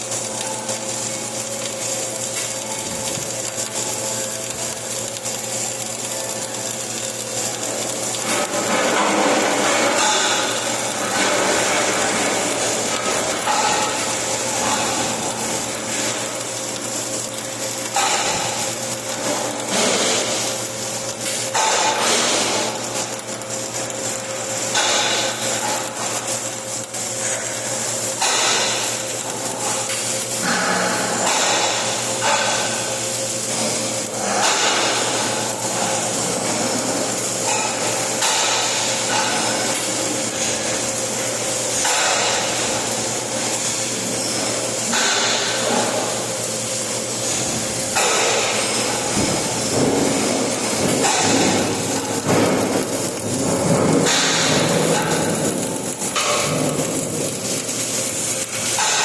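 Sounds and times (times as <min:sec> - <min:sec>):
low electrical hum: 0:00.0 - 0:59.0
welding arc crackling: 0:00.0 - 0:59.0.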